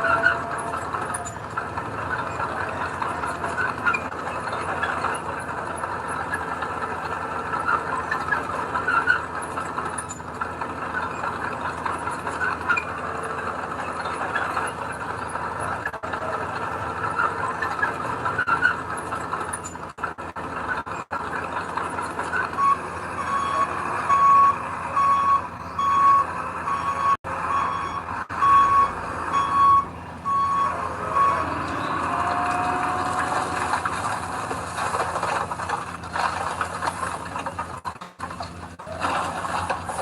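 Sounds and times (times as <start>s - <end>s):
heavy equipment engines running: 0.0s - 40.0s
reversing alarm beeping: 22.3s - 34.1s.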